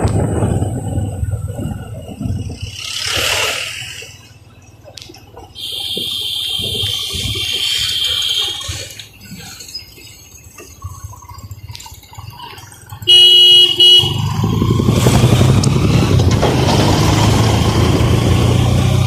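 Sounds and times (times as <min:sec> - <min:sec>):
vehicle horn honking: 0:05.6 - 0:08.8, 0:13.1 - 0:14.3
engine running loudly: 0:13.1 - 0:19.0.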